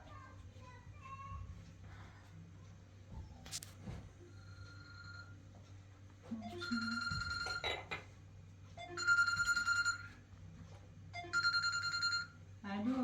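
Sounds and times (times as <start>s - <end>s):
electronic phone ring tone: 4.3s - 5.4s, 6.5s - 7.8s, 8.8s - 10.2s, 11.2s - 12.4s.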